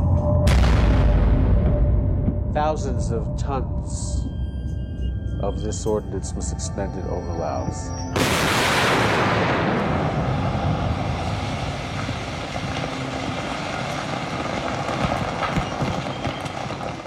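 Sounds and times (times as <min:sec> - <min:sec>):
aircraft engines droning: 0:09.1 - 0:16.8.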